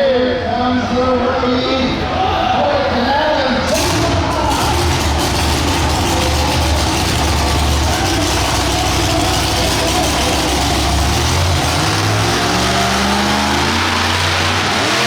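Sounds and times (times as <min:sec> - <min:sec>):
truck engine idling: 0:03.6 - 0:15.0.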